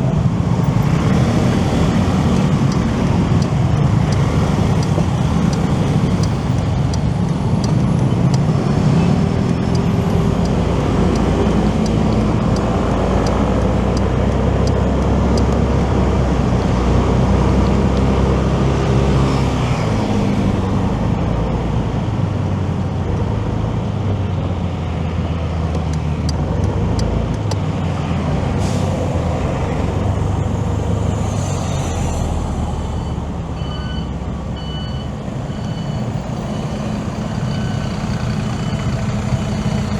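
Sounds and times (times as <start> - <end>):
nearby vehicles: 0.0 - 39.9
road noise: 0.0 - 39.9
short electronic beeps: 32.9 - 38.9.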